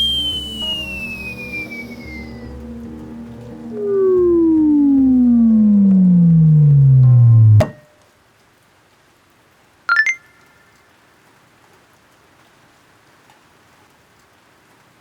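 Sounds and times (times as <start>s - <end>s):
rising chime notes: 0.0s - 7.7s, 9.9s - 10.5s
faint rain hiss: 0.0s - 15.0s.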